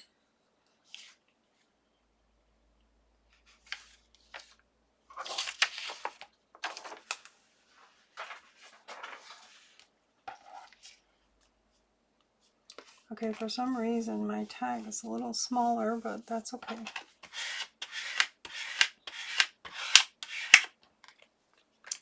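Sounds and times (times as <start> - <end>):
paper rustling and scraping: 3.4 - 11.0, 16.6 - 20.7.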